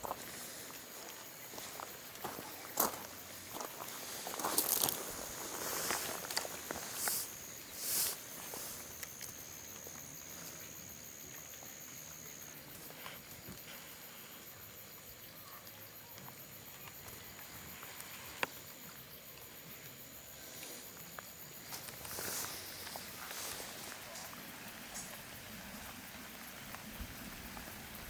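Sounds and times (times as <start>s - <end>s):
insect trilling: 0.0s - 28.0s
rustling: 3.1s - 10.8s, 20.4s - 28.0s.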